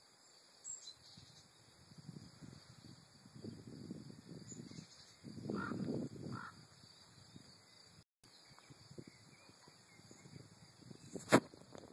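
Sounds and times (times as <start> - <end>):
harsh bird calls: 4.5 - 11.7.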